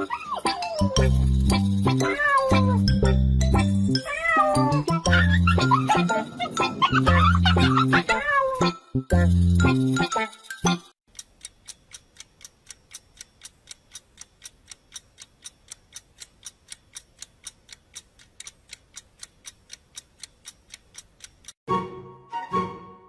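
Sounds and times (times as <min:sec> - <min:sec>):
music: 0:00.0 - 0:11.0, 0:21.7 - 0:23.0
steady ticking: 0:09.2 - 0:21.6.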